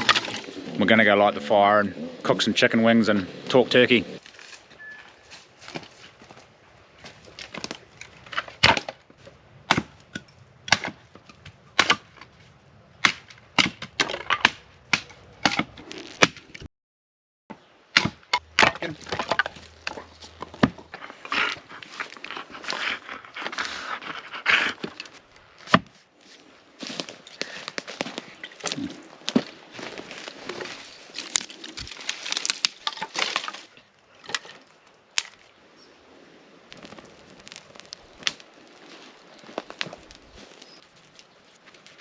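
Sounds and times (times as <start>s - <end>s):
sticks cracking and snapping: 0.0s - 0.5s, 7.0s - 9.0s, 26.8s - 35.6s, 36.7s - 42.0s.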